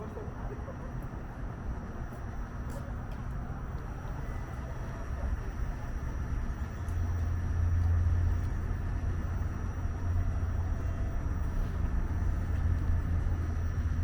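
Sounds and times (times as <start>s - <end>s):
faint high whine: 0.0s - 14.0s
low vehicle rumble: 0.0s - 14.0s.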